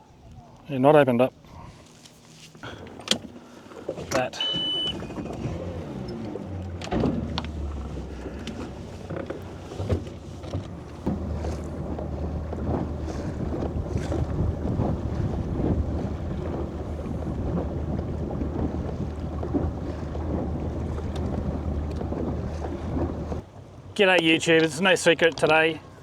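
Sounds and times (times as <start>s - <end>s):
boat motor humming: 2.6s - 23.4s
wind buffeting microphone: 7.1s - 23.4s
light knocks: 9.9s - 15.4s.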